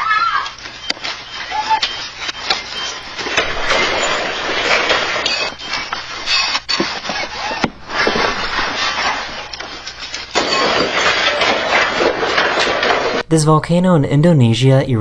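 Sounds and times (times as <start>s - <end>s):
brief squeals: 0.0s - 9.8s
objects rattling in earthquake: 0.0s - 13.2s.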